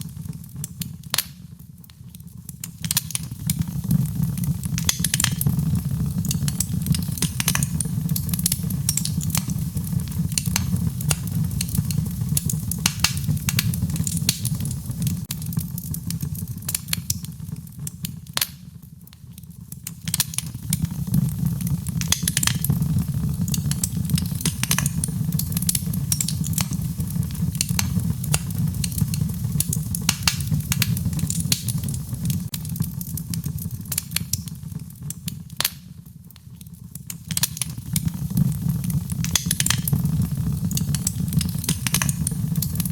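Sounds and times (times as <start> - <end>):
wood fire crackling and popping: 0.0 - 42.9.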